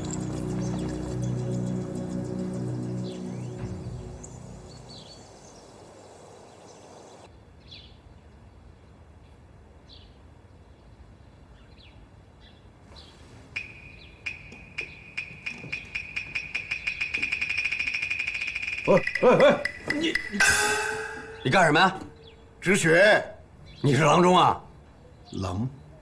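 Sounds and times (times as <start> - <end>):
faint outdoor ambience: 0.0 - 26.0
sharp ringing ticks: 13.6 - 22.3
bird chirps: 13.6 - 22.6.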